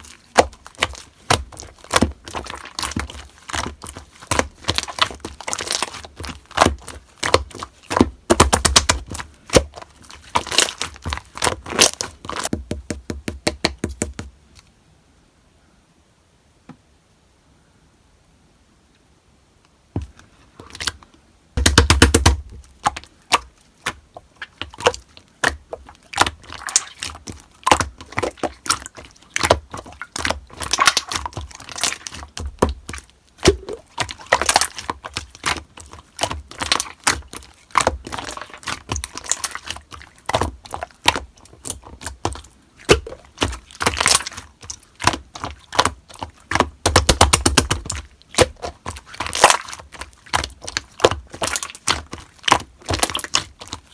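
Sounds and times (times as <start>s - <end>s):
slime squeezed by hand: 33.4s - 53.9s.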